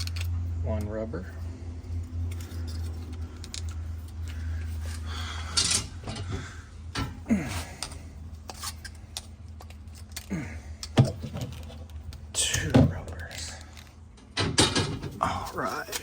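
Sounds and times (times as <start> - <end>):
low steady hum: 0.0 - 16.0
metal clinks and scrapes: 1.8 - 6.3.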